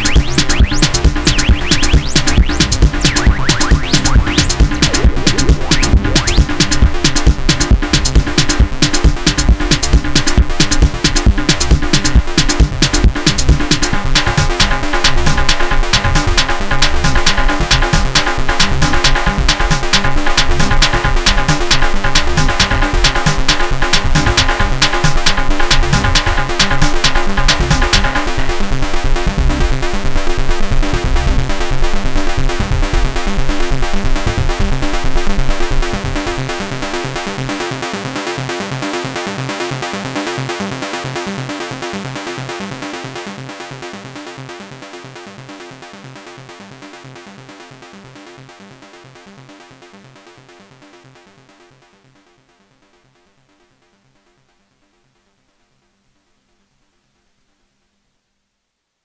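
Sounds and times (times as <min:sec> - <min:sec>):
techno synthesizer pattern: 0:00.0 - 0:39.4.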